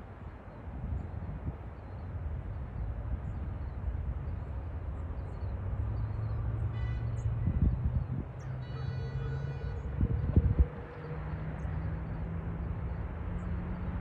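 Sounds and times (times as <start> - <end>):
wind on microphone: 7.3 - 8.4, 9.7 - 11.0.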